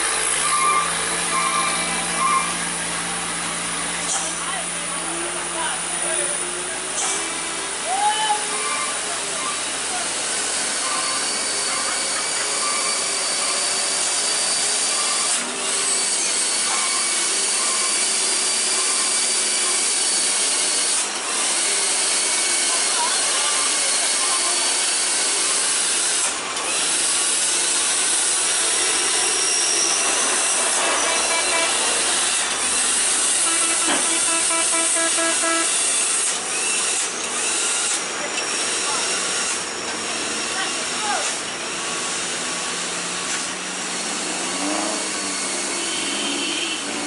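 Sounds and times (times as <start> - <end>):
short pulsing tone: 0.0 - 3.2, 30.8 - 36.0.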